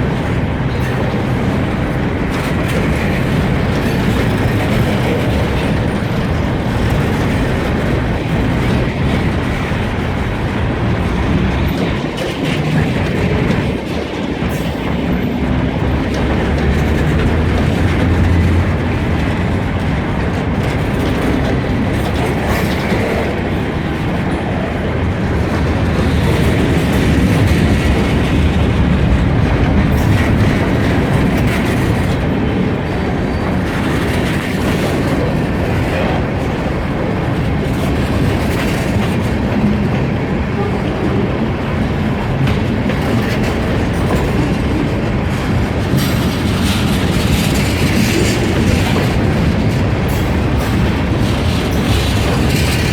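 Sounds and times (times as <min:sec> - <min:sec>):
freight train rumbling on rails: 0:00.0 - 0:52.9.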